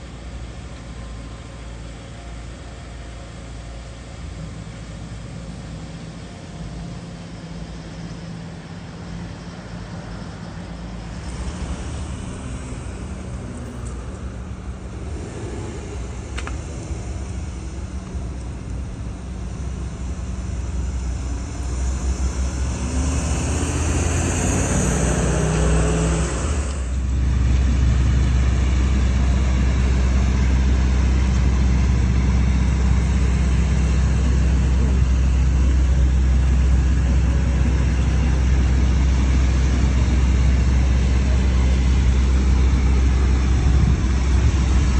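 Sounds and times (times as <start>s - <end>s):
low engine rumble: 0.0s - 44.9s
vehicle passing by: 10.7s - 30.2s.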